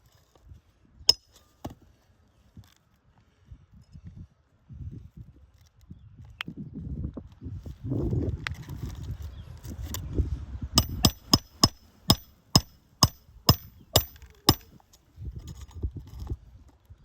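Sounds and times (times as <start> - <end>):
hammer driving nails: 10.8 - 14.8.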